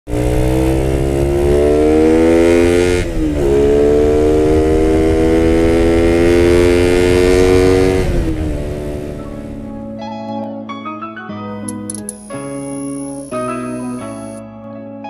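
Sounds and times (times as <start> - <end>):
motorcycle engine revving: 0.1 - 9.9.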